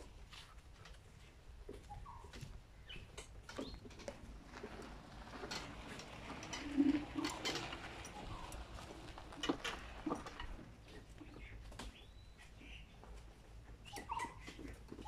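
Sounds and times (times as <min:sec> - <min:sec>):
light clicks and steps: 0:00.0 - 0:15.0
bird chirp: 0:01.9 - 0:04.0, 0:11.2 - 0:15.0.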